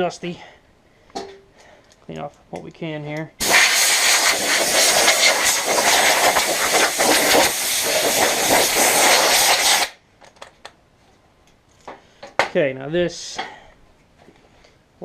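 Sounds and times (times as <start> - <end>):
compressed air hissing: 3.4 - 10.0.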